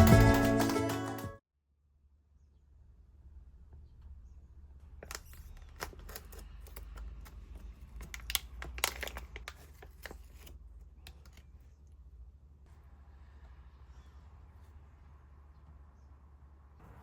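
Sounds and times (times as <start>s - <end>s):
crinkling and clicks of handling: 5.0s - 12.1s.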